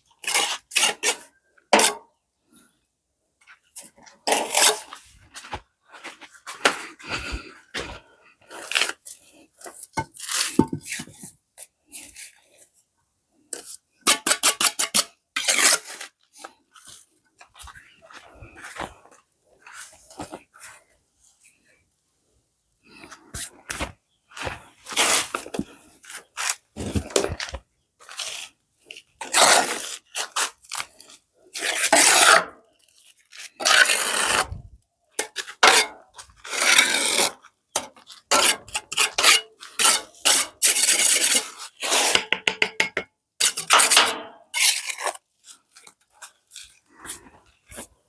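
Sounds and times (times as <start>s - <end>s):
hand tool scraping hard surface: 0.2s - 2.0s, 4.2s - 5.5s, 22.9s - 28.5s, 29.2s - 30.6s, 31.5s - 32.6s, 33.6s - 34.6s, 35.2s - 42.4s.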